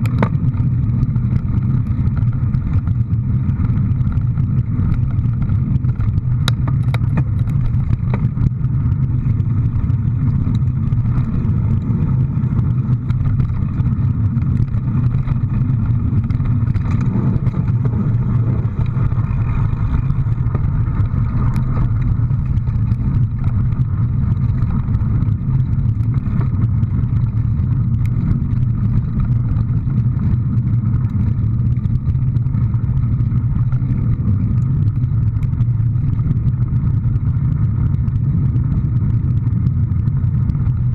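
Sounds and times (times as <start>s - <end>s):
small clicks and rattles: 0.0s - 40.9s
vehicle engine droning: 0.0s - 40.9s.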